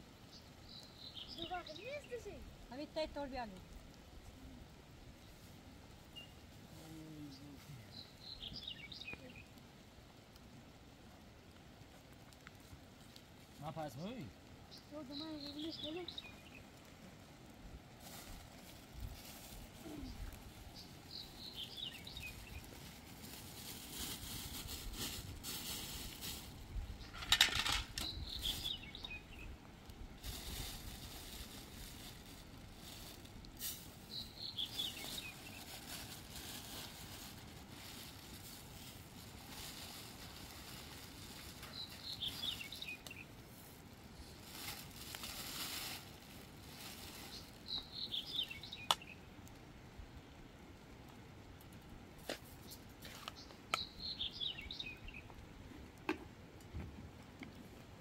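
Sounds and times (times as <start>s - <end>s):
soft hiss: 0.0s - 58.0s
small bird chirping: 0.3s - 2.4s, 14.7s - 16.7s, 19.8s - 22.8s, 28.0s - 29.6s, 34.1s - 36.0s, 41.5s - 43.3s, 47.2s - 49.3s, 52.6s - 55.3s.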